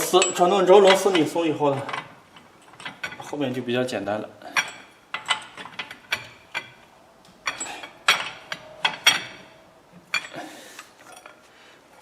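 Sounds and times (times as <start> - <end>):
hand tools clinking on metal: 0.0 - 3.4.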